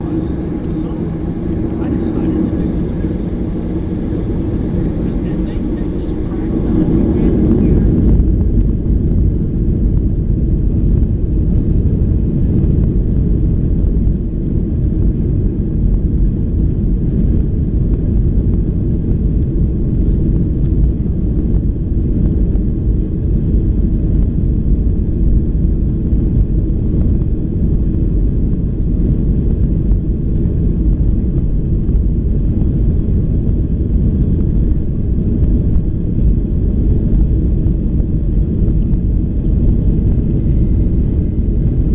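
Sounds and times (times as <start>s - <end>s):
jet engines rumbling: 0.0s - 16.7s, 32.0s - 41.9s
faint engine whine: 0.0s - 41.9s.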